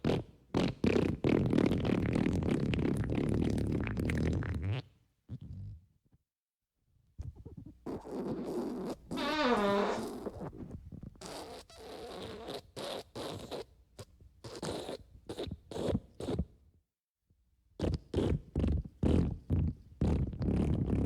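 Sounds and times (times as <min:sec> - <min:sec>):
fart sound effects: 0:07.9 - 0:10.6.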